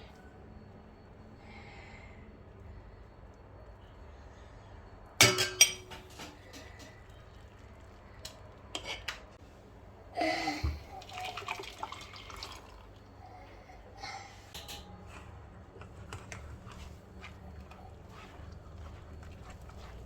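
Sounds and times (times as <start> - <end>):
glassware clinking: 5.2 - 6.2.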